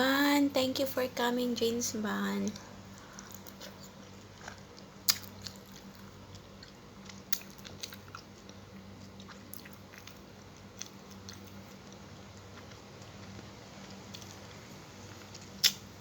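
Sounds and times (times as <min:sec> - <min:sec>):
low steady hum: 0:00.0 - 0:16.0
chewing crunchy fried fish: 0:02.5 - 0:16.0
mouth clicks: 0:15.6 - 0:15.8.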